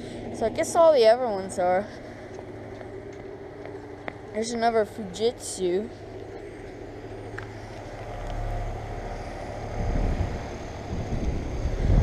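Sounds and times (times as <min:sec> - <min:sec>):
air conditioner units humming: 0:00.0 - 0:12.0
rough low rumble: 0:00.0 - 0:12.0.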